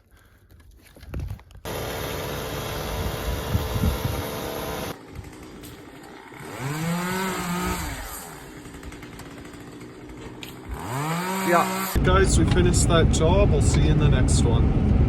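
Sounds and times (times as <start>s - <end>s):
chainsaw revving: 1.7s - 12.6s
chainsaw running: 1.7s - 12.7s.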